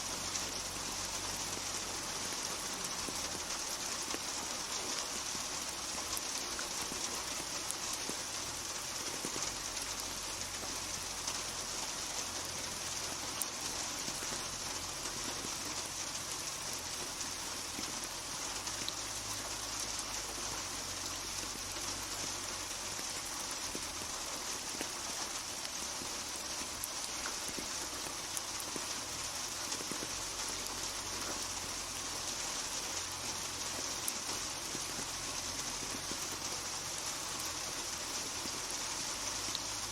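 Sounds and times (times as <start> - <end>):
raindrops pattering on hard surfaces: 0.0 - 39.9
steady rain hissing: 0.0 - 39.9.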